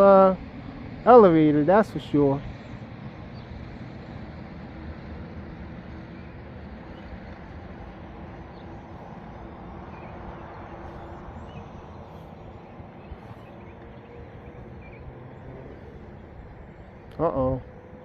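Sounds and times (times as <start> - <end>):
bird chirps: 8.4 - 18.0.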